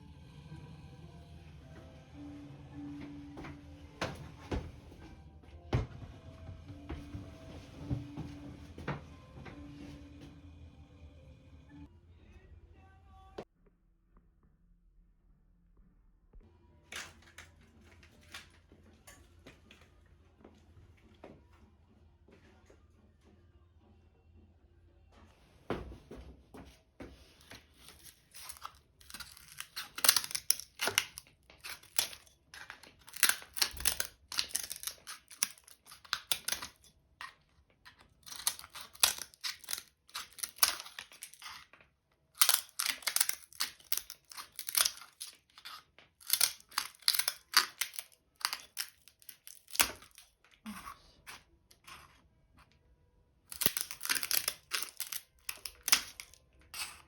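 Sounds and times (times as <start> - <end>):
dry material crinkling and snapping: 27.5 - 51.9, 53.5 - 57.0.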